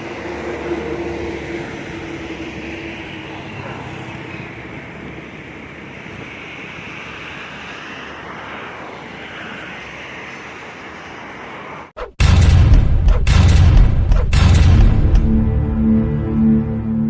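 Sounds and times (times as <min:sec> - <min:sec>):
loud music with heavy bass beat: 0:12.2 - 0:15.7.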